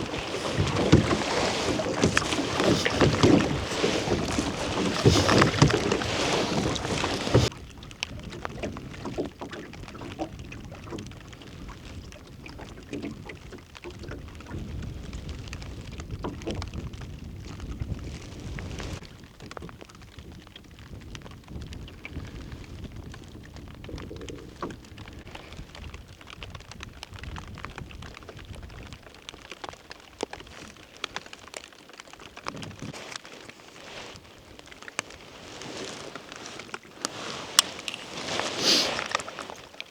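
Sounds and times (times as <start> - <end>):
wind buffeting microphone: 0.0 - 29.1
rain hiss: 37.2 - 39.1.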